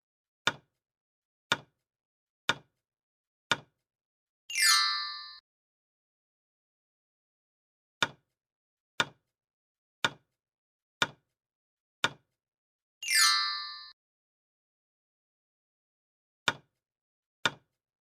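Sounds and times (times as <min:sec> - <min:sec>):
bright chime: 0:04.5 - 0:05.4, 0:13.0 - 0:14.0.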